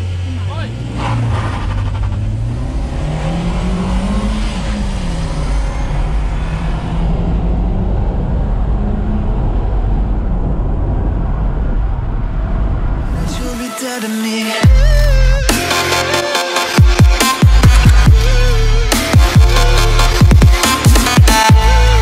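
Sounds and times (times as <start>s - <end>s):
pickup engine accelerating: 0.0s - 12.9s.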